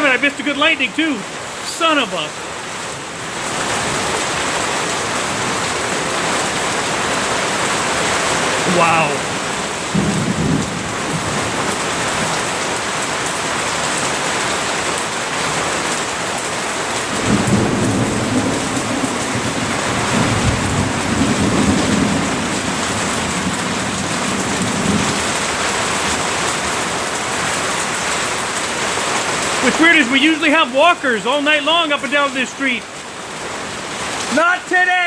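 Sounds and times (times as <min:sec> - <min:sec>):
heavy rain pouring: 0:00.0 - 0:35.0
low rumble of thunder: 0:09.3 - 0:12.3, 0:17.1 - 0:25.4.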